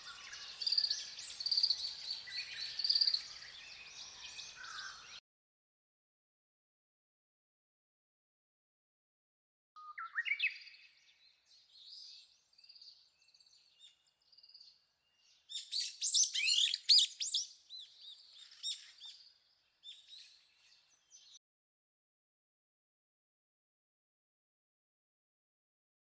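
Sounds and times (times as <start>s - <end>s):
small songbird singing: 0.0s - 5.2s, 9.8s - 21.4s.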